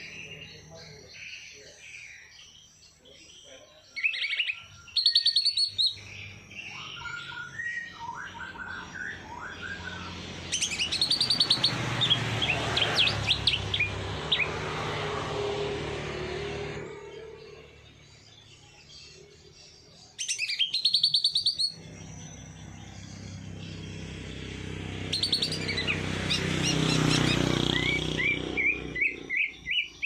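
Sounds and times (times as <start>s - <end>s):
songbirds chirping and singing: 0.0s - 30.0s.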